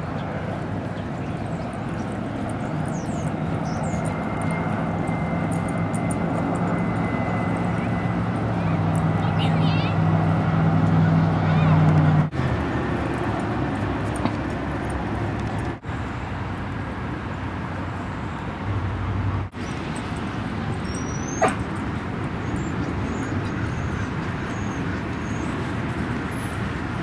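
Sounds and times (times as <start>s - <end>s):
outdoor background noise: 0.0s - 27.0s
dog yipping: 20.8s - 21.8s.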